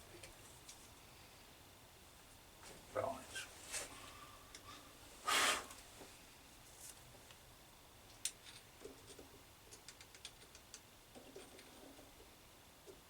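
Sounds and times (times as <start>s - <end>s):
faint small clicks: 8.1s - 11.7s.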